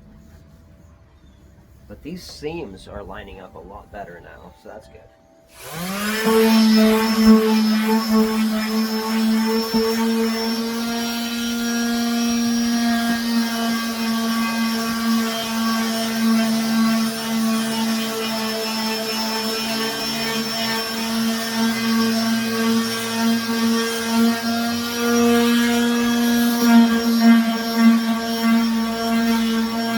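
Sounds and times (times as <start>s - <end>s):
electric power sander on wood: 5.5s - 29.9s.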